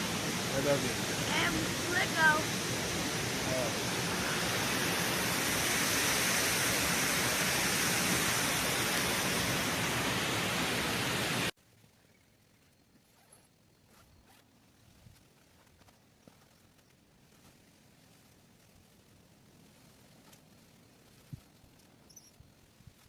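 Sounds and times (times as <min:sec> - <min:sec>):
water roaring over a dam: 0:00.0 - 0:11.5.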